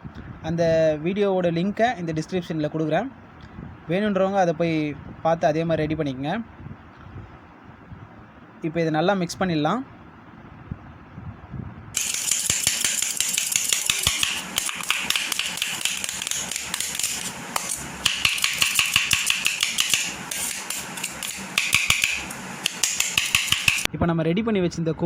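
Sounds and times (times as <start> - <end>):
spoon scraping a plate: 12.0 - 23.9.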